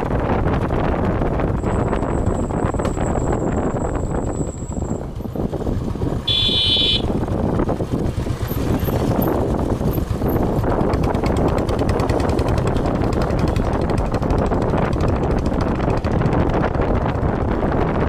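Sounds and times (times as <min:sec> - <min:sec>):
motorcycle engine rumble: 0:00.0 - 0:18.0
wind buffeting microphone: 0:00.0 - 0:18.0
horn beep: 0:06.3 - 0:07.1.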